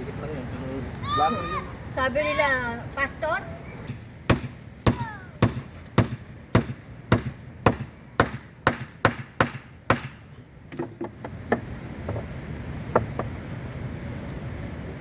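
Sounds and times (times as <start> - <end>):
hammer striking wood: 3.8 - 12.2, 13.0 - 13.3.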